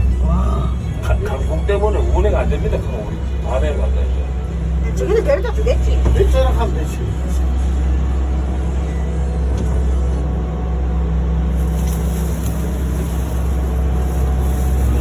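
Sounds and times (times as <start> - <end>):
loud low motor hum: 0.0 - 15.0.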